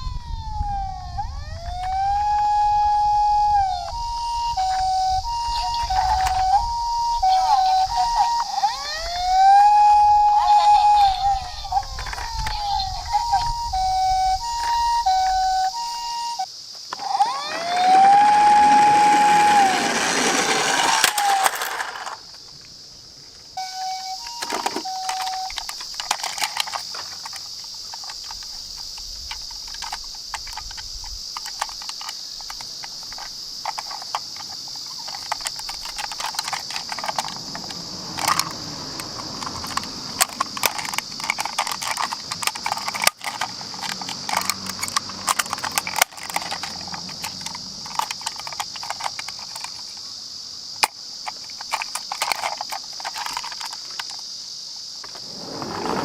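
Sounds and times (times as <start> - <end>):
high-pitched buzz: 0.0 - 22.2
toy cars clattering: 0.0 - 22.7, 23.3 - 54.4, 55.0 - 56.0.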